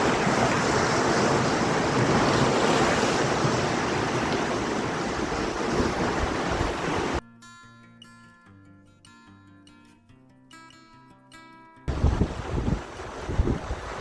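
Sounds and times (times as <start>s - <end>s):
surf breaking on shore: 0.0s - 7.2s, 11.9s - 14.0s
wind buffeting microphone: 0.0s - 7.2s, 11.9s - 14.0s.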